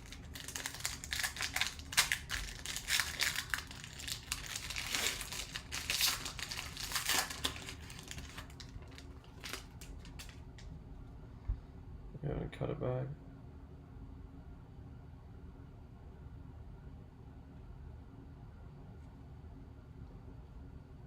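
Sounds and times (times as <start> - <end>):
plastic wrapping crinkling: 0.0 - 10.7.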